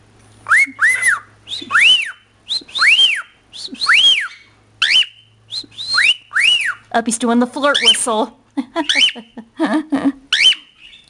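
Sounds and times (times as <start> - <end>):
cockatiel whistling: 0.4 - 6.9, 8.8 - 9.4, 10.3 - 11.0.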